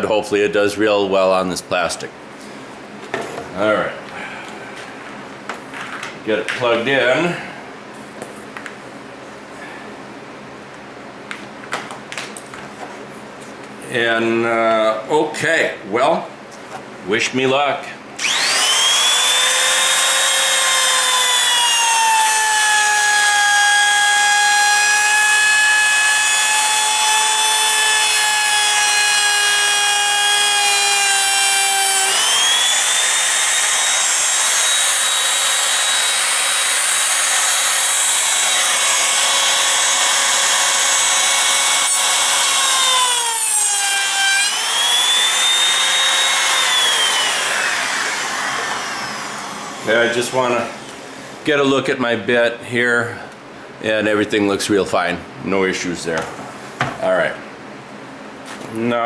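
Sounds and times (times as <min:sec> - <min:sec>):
electric router whining: 0:18.2 - 0:51.4.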